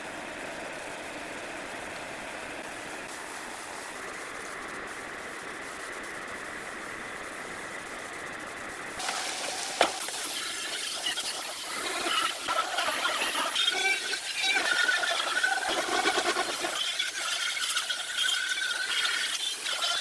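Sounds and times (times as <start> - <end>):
mechanical running noise: 9.0 - 20.0.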